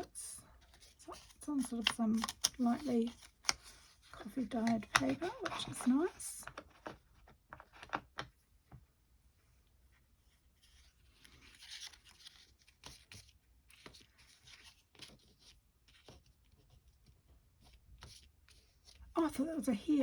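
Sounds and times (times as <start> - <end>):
paper rustling and tapping: 0.8 - 8.3.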